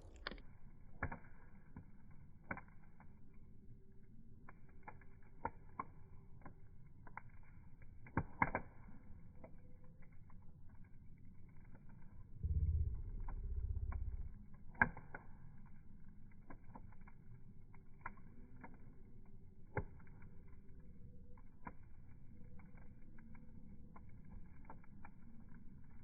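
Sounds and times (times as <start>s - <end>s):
bonfire crackling: 0.0s - 26.0s
faint steady rumble: 12.1s - 14.5s.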